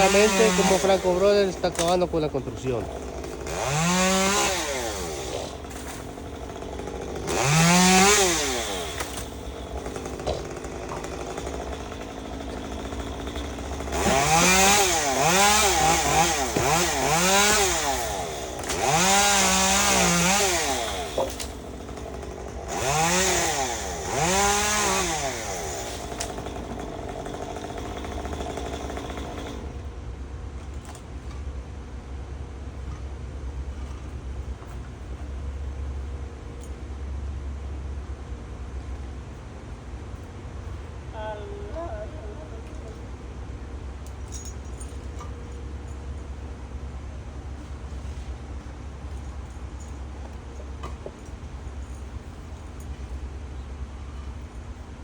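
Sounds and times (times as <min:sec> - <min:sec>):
chainsaw revving: 0:00.0 - 0:29.7.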